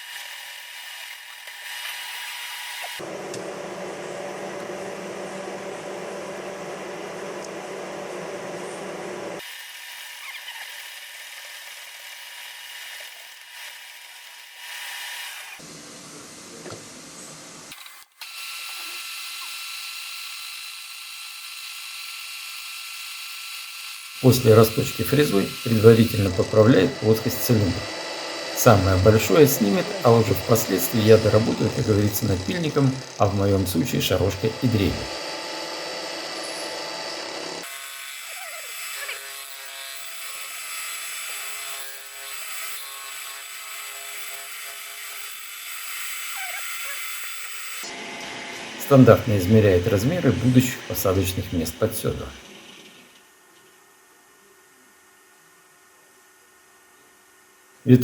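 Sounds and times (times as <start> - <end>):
boring machine cutting metal: 0.0 - 3.8, 17.7 - 53.2.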